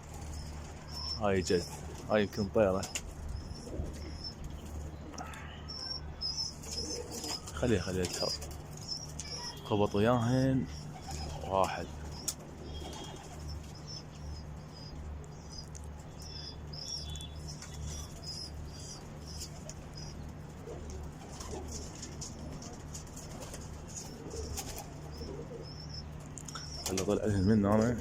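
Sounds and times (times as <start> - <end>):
pigeons cooing: 0.0 - 28.0
small birds chirping: 0.0 - 28.0
steady low hum: 0.0 - 28.0
pigeon wings flapping: 10.8 - 13.6, 19.5 - 25.6.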